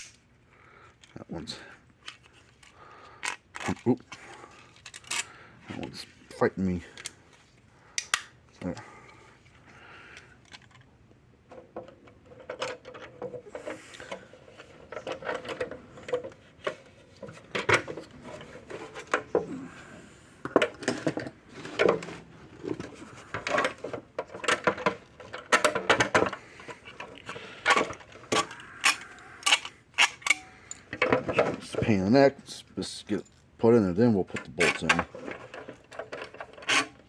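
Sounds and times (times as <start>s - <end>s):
metal parts clicking and scraping: 2.0s - 5.3s, 12.0s - 19.4s, 20.5s - 31.8s, 34.3s - 37.0s.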